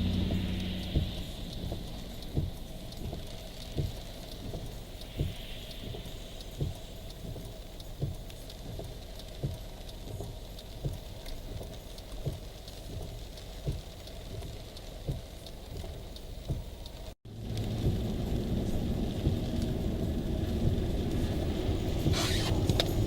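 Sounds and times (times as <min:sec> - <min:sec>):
vehicle noise: 0:00.0 - 0:09.1, 0:17.3 - 0:23.0
low regular thump: 0:00.0 - 0:16.8, 0:17.6 - 0:21.1
steady rain: 0:00.0 - 0:23.0.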